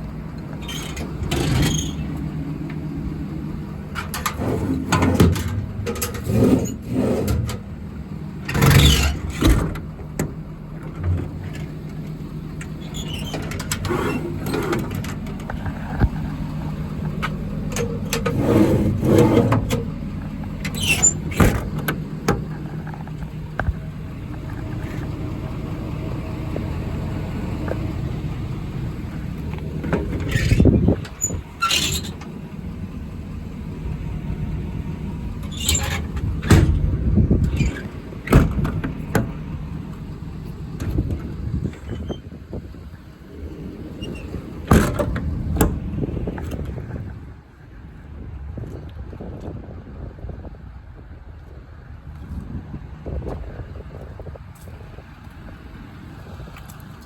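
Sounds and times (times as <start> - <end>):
diesel truck engine idling: 0.0 - 57.0
rustles and bumps near microphone: 13.4 - 17.4.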